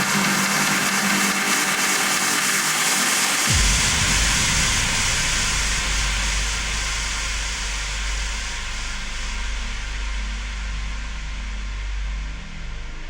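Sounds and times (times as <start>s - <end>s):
electronic trance music: 0.0s - 13.0s
deep bass hit dropping in pitch: 3.5s - 13.0s.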